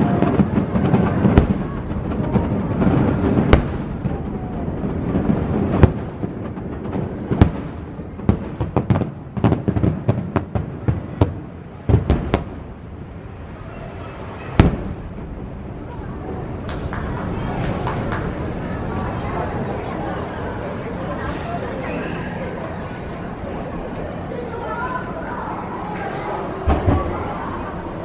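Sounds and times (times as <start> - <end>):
firework shells bursting with bangs: 0.0 - 12.9, 14.5 - 15.7
firework crackling: 0.0 - 28.0
rumbling echoes: 0.0 - 28.0.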